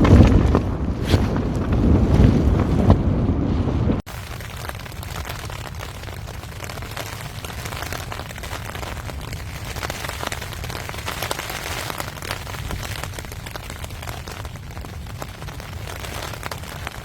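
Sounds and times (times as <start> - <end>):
low rumble of wind: 0.0 - 17.0
rain falling steadily: 4.1 - 17.0.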